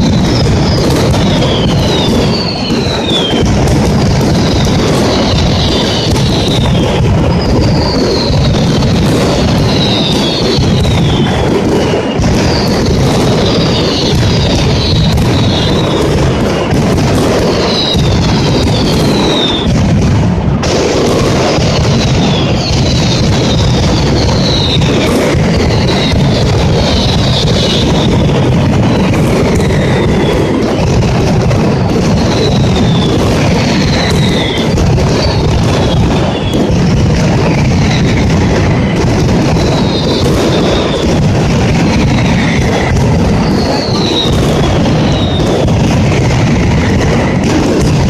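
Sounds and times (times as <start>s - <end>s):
firecracker bangs: 0.0s - 48.0s
whistles falling in pitch: 17.5s - 19.7s, 22.2s - 25.0s.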